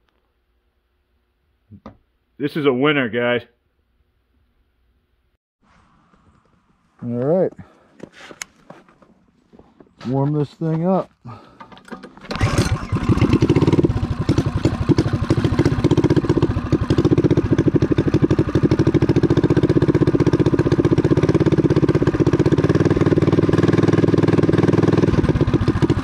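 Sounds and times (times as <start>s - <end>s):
small engine starting and running: 11.3s - 26.0s.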